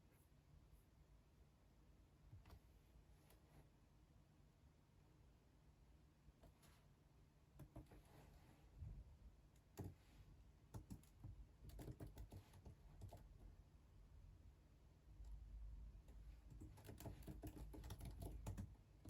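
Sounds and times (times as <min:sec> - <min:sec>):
keyboard typing: 0:10.7 - 0:13.4, 0:16.4 - 0:19.0.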